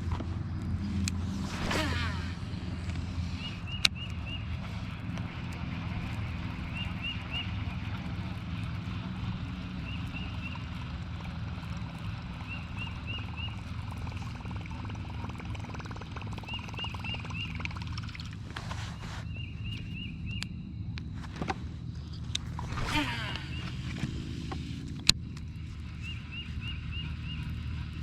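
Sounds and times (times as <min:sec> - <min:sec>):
steady low hum: 0:00.0 - 0:28.0
bird chirping: 0:03.0 - 0:04.8, 0:06.5 - 0:07.8, 0:25.5 - 0:28.0.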